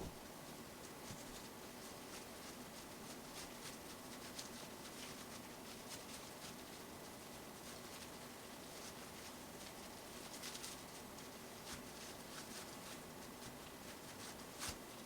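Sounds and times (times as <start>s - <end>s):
steady low hiss: 0.0s - 0.2s.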